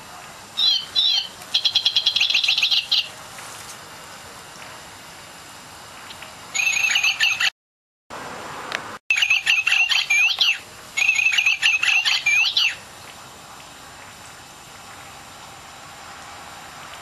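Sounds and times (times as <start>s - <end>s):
bird chirps and whistles: 0.6s - 3.1s, 6.6s - 7.5s, 9.1s - 12.8s.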